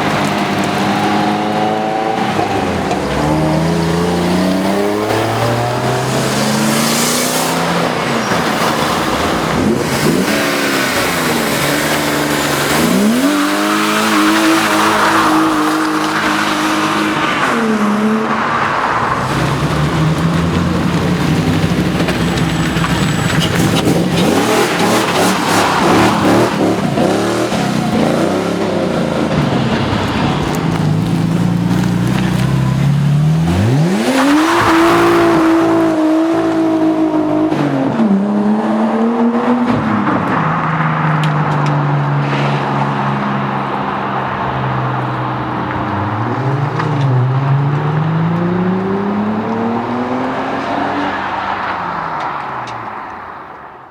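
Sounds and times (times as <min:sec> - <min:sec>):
rough noisy rush: 0:00.0 - 0:38.2
car engines revving: 0:00.0 - 0:53.9.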